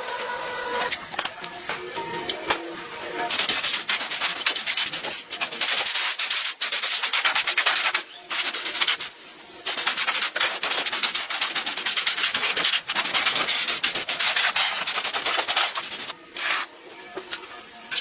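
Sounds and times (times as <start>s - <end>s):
abrasive scrubbing on hard surface: 9.7s - 16.7s.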